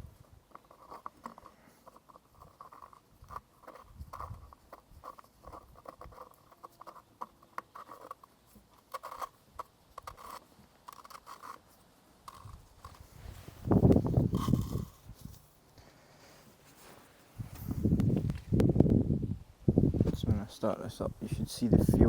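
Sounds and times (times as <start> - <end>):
faint clicks taps and scrapes: 0.4 - 13.1.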